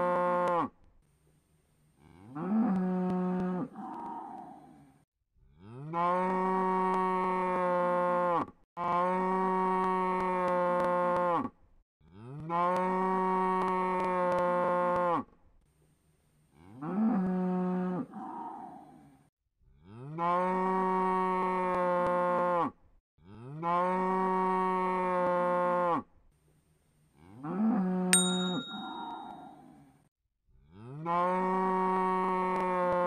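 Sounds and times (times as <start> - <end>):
cow mooing: 2.0 - 4.6
short ding: 28.2 - 29.5.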